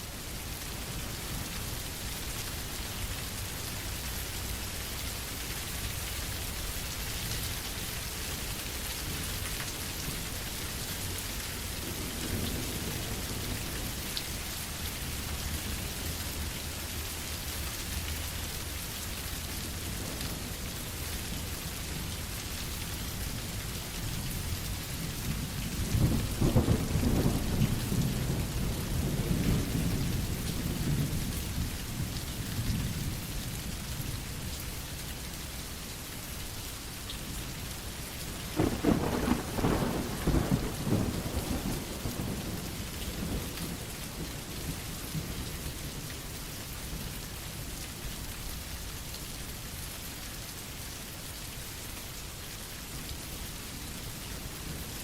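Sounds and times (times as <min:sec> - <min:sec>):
steady rain falling: 0:00.0 - 0:55.0
thunder rumbling: 0:38.6 - 0:42.6.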